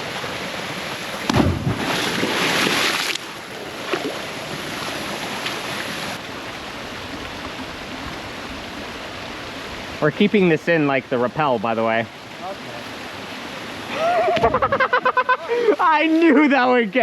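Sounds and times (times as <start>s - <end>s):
water churning and splashing: 0.0s - 14.7s
heavy thump: 1.3s - 1.9s
waterfall rushing water: 2.8s - 14.4s.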